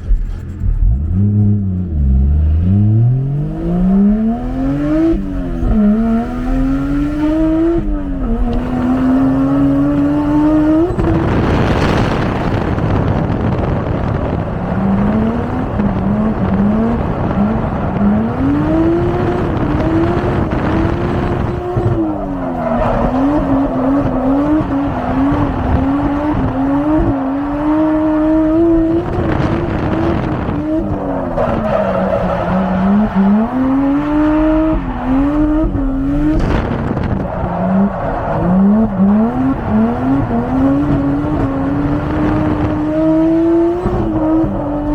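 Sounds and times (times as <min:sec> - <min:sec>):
car engine revving: 0:00.0 - 0:44.9.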